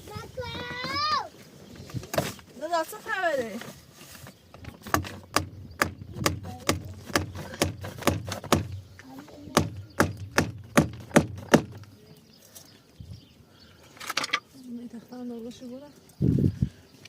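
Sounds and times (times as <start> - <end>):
sharp knocks: 4.6 - 8.8, 9.5 - 11.9.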